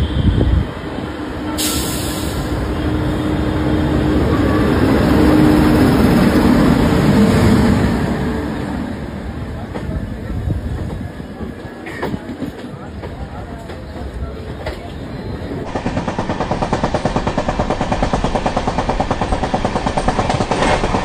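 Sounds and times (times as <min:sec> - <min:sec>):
train wheels rumbling on rail: 0:00.0 - 0:21.0
sudden hiss: 0:01.6 - 0:02.7.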